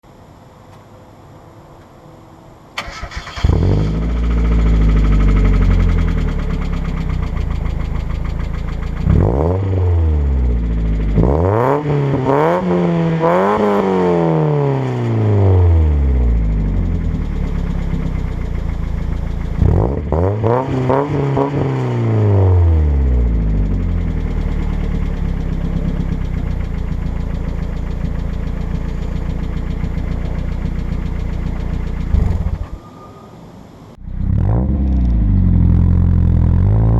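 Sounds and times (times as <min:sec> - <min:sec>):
car engine starting and revving: 0:02.8 - 0:33.1, 0:34.0 - 0:36.9
engine lifter tick: 0:23.4 - 0:32.7.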